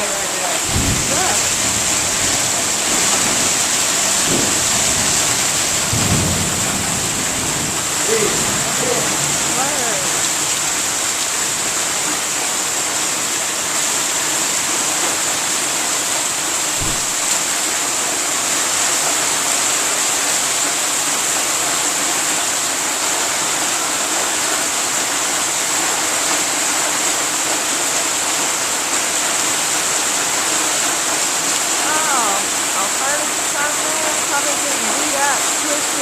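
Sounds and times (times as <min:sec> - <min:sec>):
heavy rain pouring: 0:00.0 - 0:36.0.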